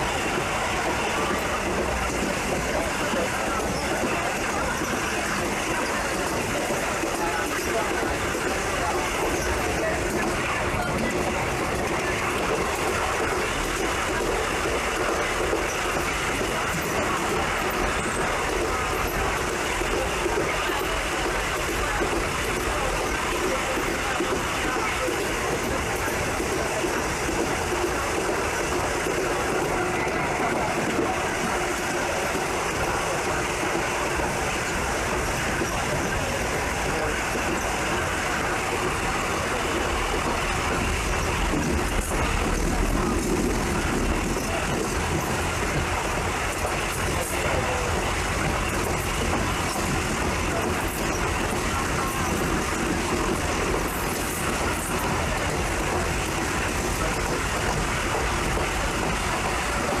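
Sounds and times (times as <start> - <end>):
passenger train running: 0.0 - 60.0.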